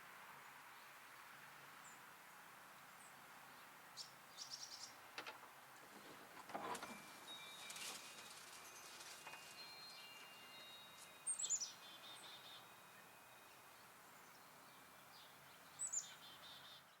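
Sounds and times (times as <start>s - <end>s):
songbird calling: 3.0s - 5.0s, 6.9s - 17.0s.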